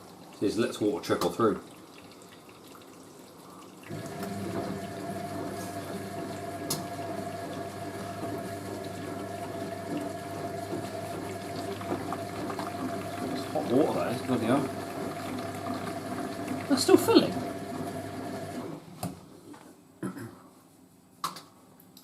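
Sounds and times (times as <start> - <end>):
water rushing into washing machine: 0.0 - 18.9.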